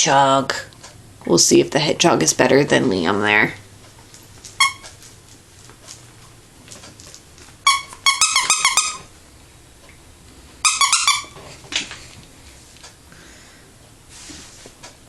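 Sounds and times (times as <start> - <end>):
dog toy squeaking: 4.4 - 5.0, 7.6 - 9.1, 10.6 - 11.4.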